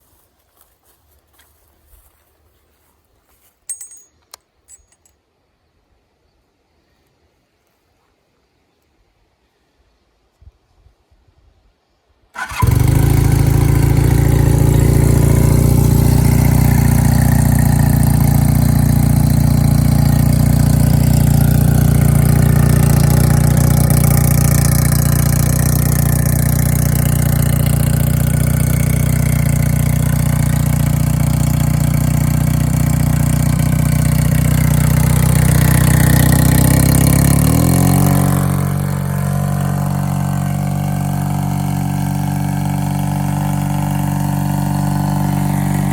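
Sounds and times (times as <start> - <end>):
motorcycle engine idling: 12.4 - 45.9.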